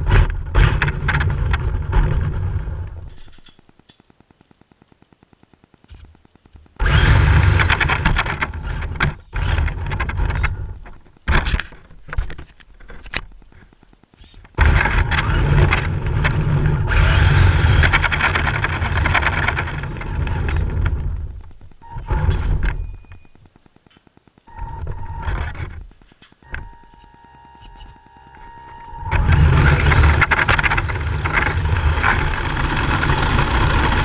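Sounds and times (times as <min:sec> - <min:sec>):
rc drift car scraping and rumbling: 0:06.8 - 0:10.8, 0:14.6 - 0:22.8, 0:29.0 - 0:34.0.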